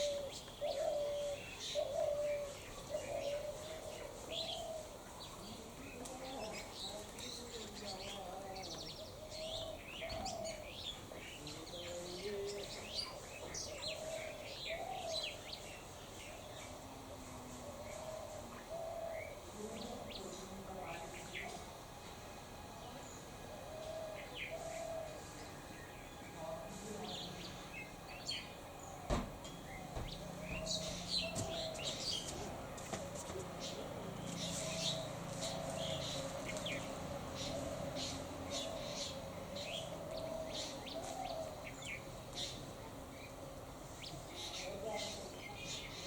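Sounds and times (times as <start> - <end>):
birds chirping: 0.0 - 46.0
sharp knock: 29.1 - 29.4.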